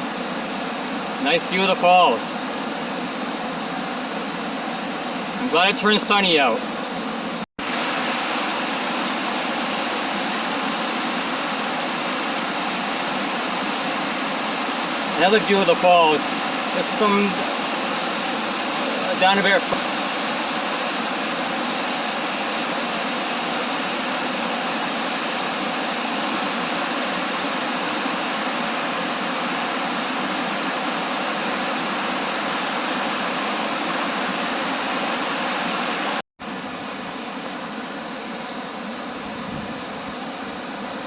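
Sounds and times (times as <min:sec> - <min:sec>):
waterfall rushing: 0:01.2 - 0:02.5, 0:07.6 - 0:36.2.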